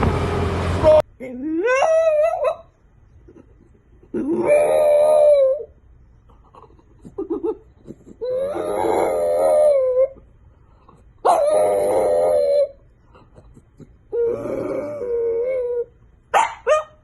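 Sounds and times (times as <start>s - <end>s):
dog howling: 4.2s - 5.7s, 8.2s - 10.2s, 11.2s - 12.8s, 14.1s - 15.9s.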